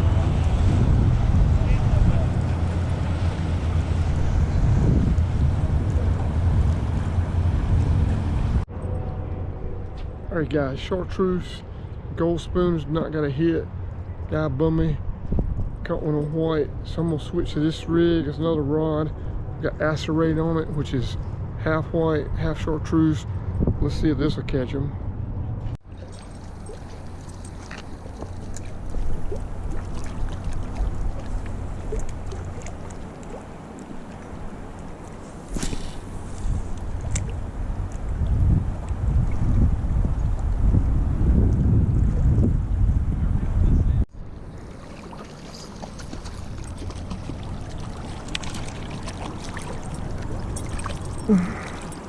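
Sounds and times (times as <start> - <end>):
flowing river water: 0.0 - 8.6, 25.8 - 42.3, 44.1 - 52.0
wind on microphone: 0.0 - 9.3, 15.0 - 15.9, 23.4 - 25.8, 26.9 - 44.4.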